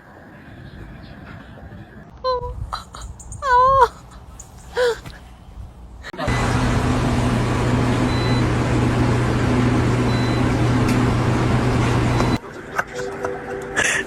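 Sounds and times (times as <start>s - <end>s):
steady mechanical hum: 0.1s - 13.4s.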